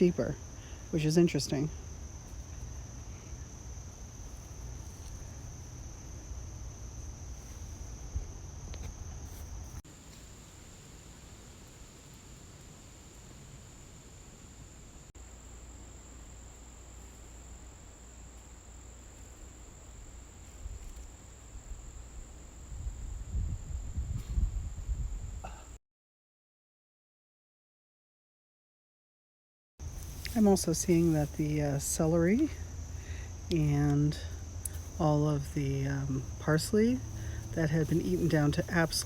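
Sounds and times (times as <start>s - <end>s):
insect chorus: 0.0s - 25.8s, 29.8s - 39.0s.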